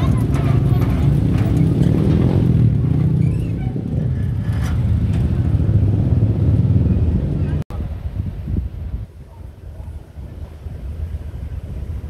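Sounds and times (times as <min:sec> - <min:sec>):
train rumbling along track: 0:00.0 - 0:08.1.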